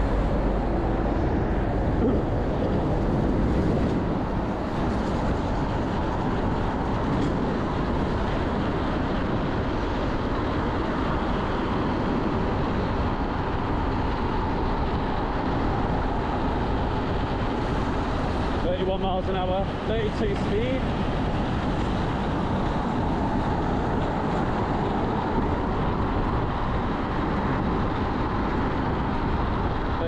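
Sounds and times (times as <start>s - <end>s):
road noise: 0.0s - 30.0s
rushing wind: 0.0s - 30.0s.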